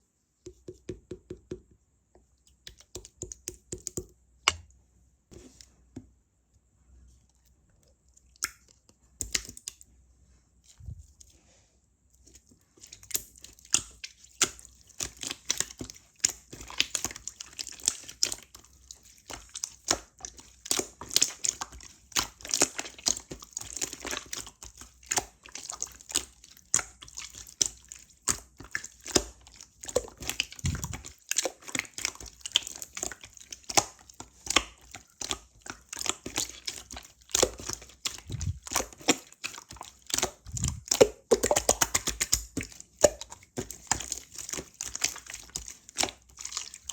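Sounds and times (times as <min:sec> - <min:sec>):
slime squishing and crackling: 0:12.8 - 0:46.9.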